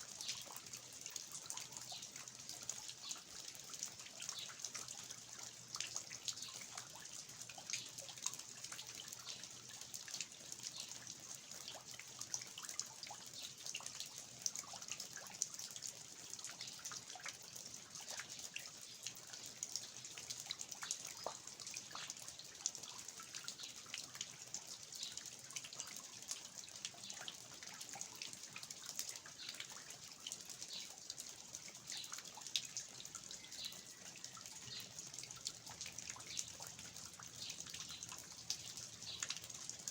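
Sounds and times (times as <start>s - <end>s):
drops dripping from eaves: 0.0s - 39.9s.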